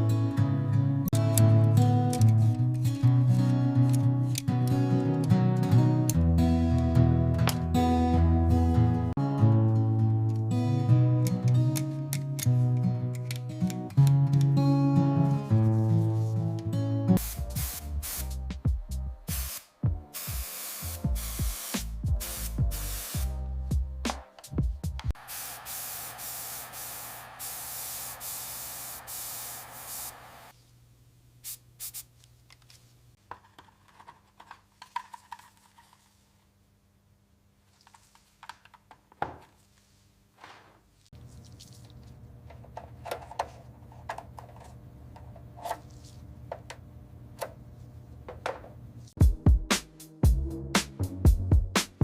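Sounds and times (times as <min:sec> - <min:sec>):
compressed air spray hissing: 0:17.2 - 0:18.5, 0:19.3 - 0:23.4, 0:25.2 - 0:30.5, 0:31.4 - 0:32.1.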